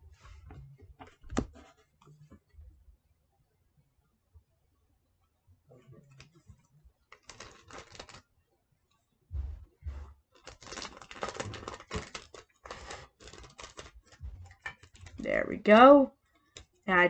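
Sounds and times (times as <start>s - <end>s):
paper crinkling and rustling: 6.1s - 8.2s, 10.3s - 15.2s
dull thumps: 9.3s - 10.2s, 14.0s - 15.2s.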